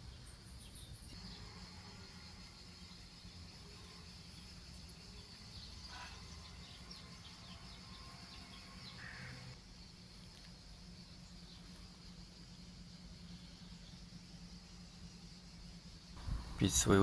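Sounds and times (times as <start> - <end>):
high insect drone: 0.0 - 17.0
low background rumble: 9.5 - 17.0.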